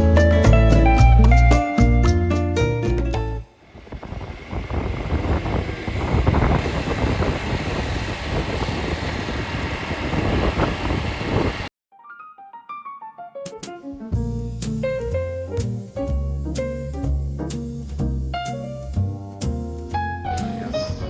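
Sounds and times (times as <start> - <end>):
motor vehicle running: 3.5 - 11.7
soft piano music: 11.9 - 21.0.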